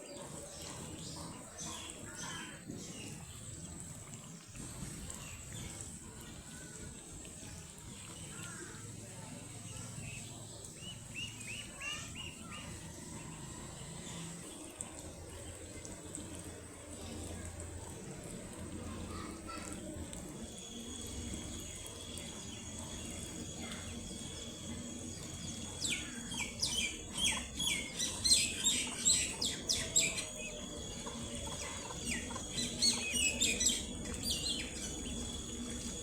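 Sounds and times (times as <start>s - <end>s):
faint background hum: 0.0s - 36.0s
ducklings peeping: 10.0s - 13.4s, 25.2s - 35.9s.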